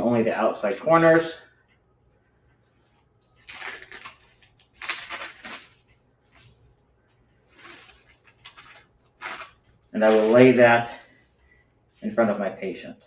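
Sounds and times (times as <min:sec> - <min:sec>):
paper drape crinkling: 0:00.6 - 0:01.3, 0:02.7 - 0:06.7, 0:07.4 - 0:11.2.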